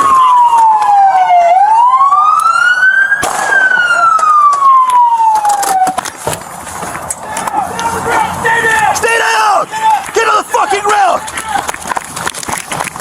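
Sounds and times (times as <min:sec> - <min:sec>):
police siren wailing: 0:00.0 - 0:06.1.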